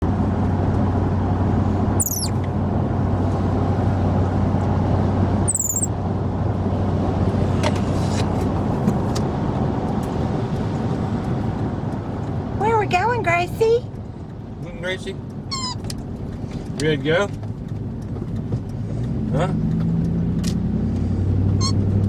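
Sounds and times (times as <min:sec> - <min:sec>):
engine and tyre drone: 0:00.0 - 0:22.0
high-pitched falling squeaks: 0:02.0 - 0:02.4, 0:05.5 - 0:05.9, 0:15.5 - 0:15.8, 0:21.6 - 0:21.9.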